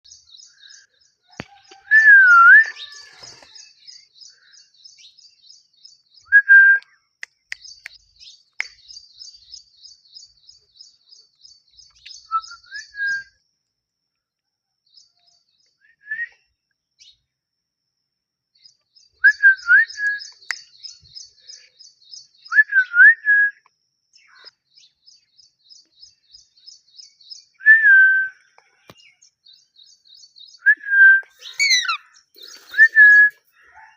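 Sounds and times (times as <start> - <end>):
parrot whistling: 31.4 - 33.3
fast high chirping: 31.4 - 33.4.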